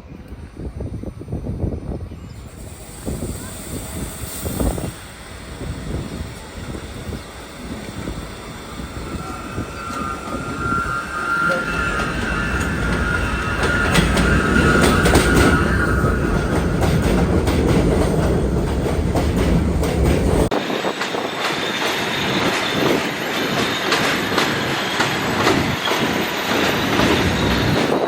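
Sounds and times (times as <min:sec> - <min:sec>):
deep train rumble: 0:00.0 - 0:28.0
high steady squeal: 0:01.2 - 0:18.9
train wheels clacking on rails: 0:02.4 - 0:28.0.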